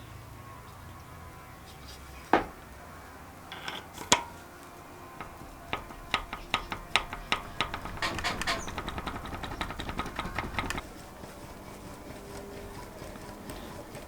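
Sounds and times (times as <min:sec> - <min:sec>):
metallic knocks: 0:02.4 - 0:02.6, 0:03.5 - 0:04.5, 0:05.1 - 0:12.1
metal parts clicking: 0:03.5 - 0:04.5, 0:05.2 - 0:10.8.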